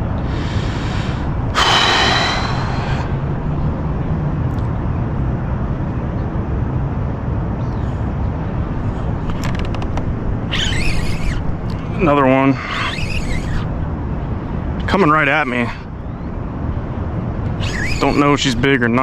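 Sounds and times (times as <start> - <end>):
rushing noise: 0.0 - 4.3
motor hum: 0.0 - 4.7, 8.6 - 18.8.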